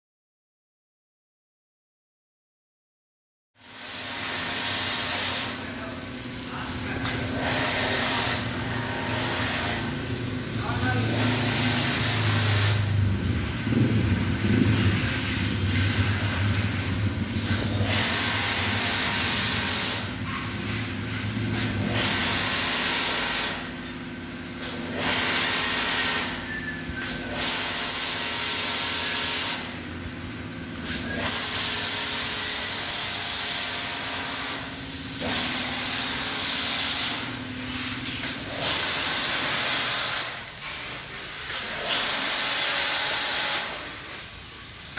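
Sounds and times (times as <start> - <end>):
pressure washer spraying water: 3.6 - 44.9
pump low hum: 5.8 - 23.0.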